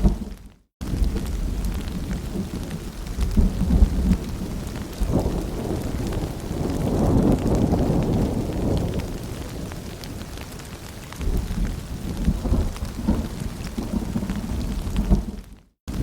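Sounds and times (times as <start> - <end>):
distant thunder rumbling: 0.0 - 16.0
rain: 0.0 - 16.0.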